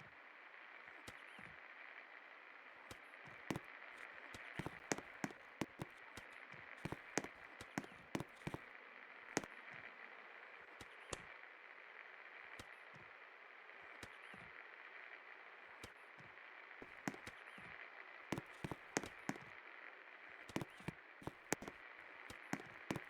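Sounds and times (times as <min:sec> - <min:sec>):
sharp clicks and taps: 0:04.6 - 0:05.9, 0:20.5 - 0:21.7, 0:22.6 - 0:23.0.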